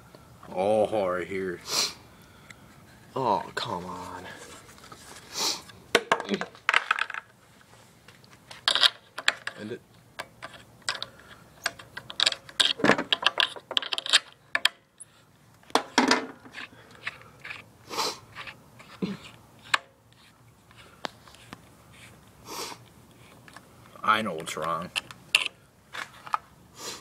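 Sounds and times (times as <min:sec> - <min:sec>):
metal tools clinking and knocking: 0:10.5 - 0:14.7.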